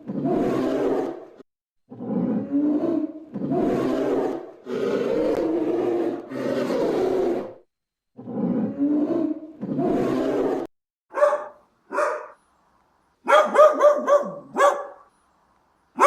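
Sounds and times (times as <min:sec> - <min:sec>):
large animal roaring: 0:00.0 - 0:10.7.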